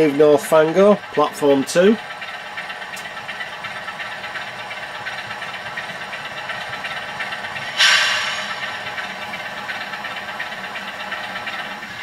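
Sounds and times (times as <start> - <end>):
model diesel locomotive engine idling: 0.0 - 12.0
loud air hiss: 7.5 - 9.4.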